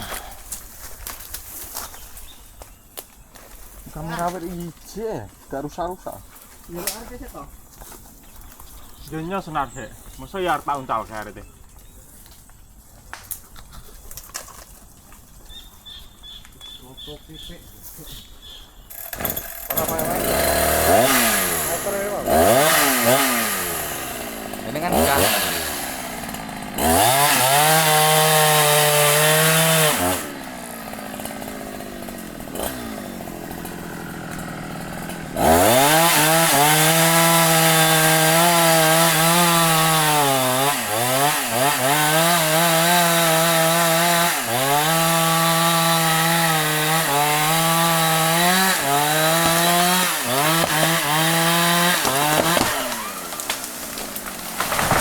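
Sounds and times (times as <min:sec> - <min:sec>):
chainsaw revving and cutting wood: 0:00.0 - 0:00.7, 0:18.9 - 0:55.0.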